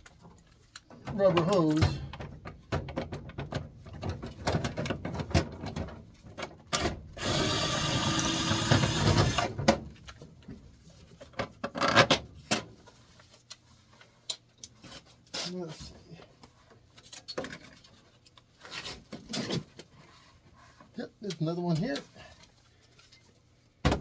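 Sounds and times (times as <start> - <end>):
steady motor noise: 7.2 - 9.6.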